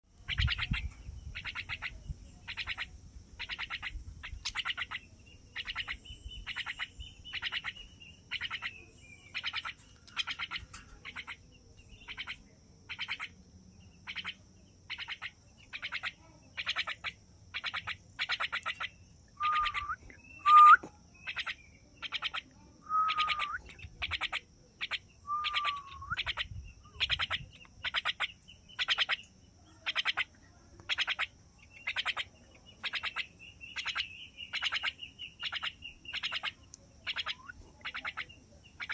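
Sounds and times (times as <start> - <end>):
bird chattering: 0.2 - 13.4, 14.0 - 38.9
bird whistled notes: 19.4 - 28.0.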